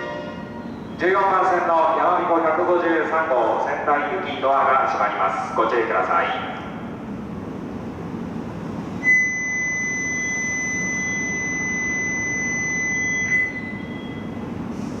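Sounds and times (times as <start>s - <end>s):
low station hum: 0.0s - 15.0s
high warning buzzer beep: 9.0s - 14.2s.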